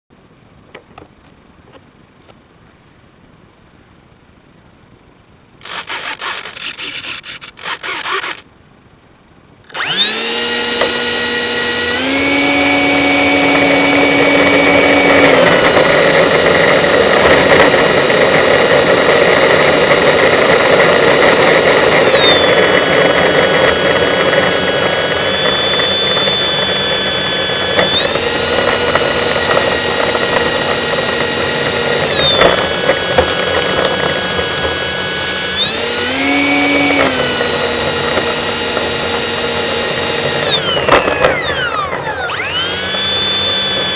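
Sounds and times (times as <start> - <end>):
electric ducted fan whine: 0.1 - 43.9
brief scratchy noise: 5.6 - 8.4.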